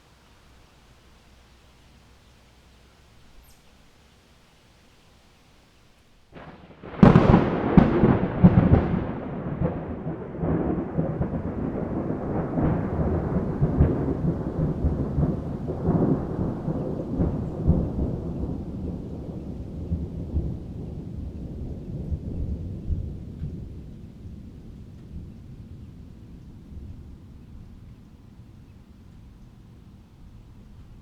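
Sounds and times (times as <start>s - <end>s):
thunder clap and rumble: 6.4s - 28.0s.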